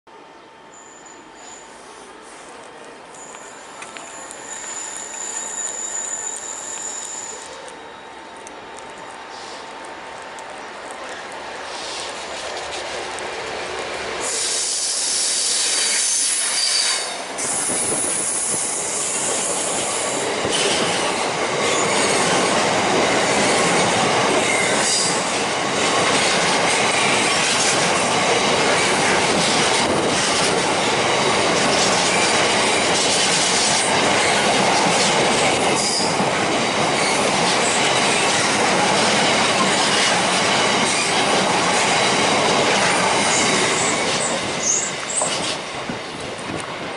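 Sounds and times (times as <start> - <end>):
freight train passing: 0.1 - 46.9
wheel squeal: 0.8 - 1.9, 3.2 - 7.6, 14.2 - 20.8, 43.2 - 45.5
clickety-clack over rails: 17.4 - 46.9.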